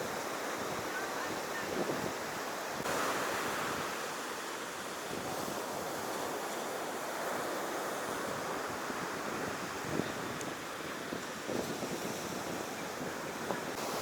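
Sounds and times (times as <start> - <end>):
wind on microphone: 0.0 - 4.0, 7.0 - 14.0
ocean surf washing up: 0.0 - 14.0.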